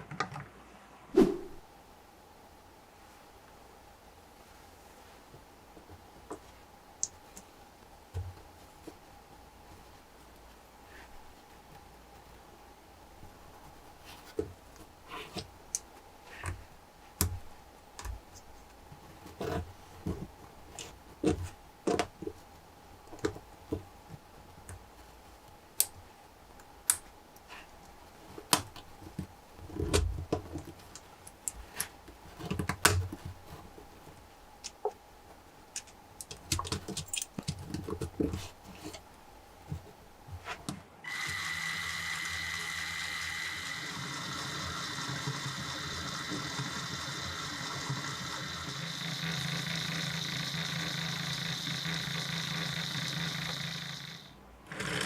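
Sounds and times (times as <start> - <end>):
plastic pieces clicking together: 35.7 - 38.0
model engine whirring: 41.1 - 55.0.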